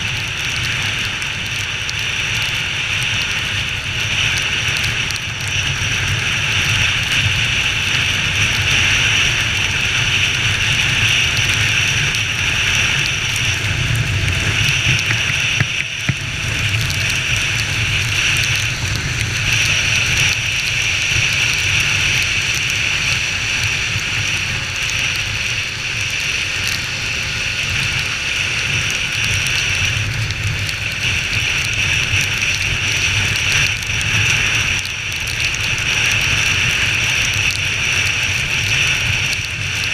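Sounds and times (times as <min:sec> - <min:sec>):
wind and rain hiss: 0:00.0 - 0:39.9
motorcycle engine running: 0:06.7 - 0:28.9.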